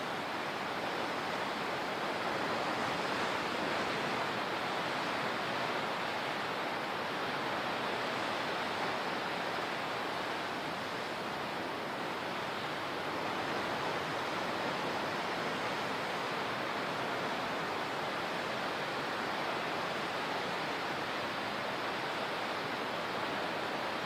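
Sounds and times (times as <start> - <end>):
ocean surf washing ashore: 0.0 - 24.0.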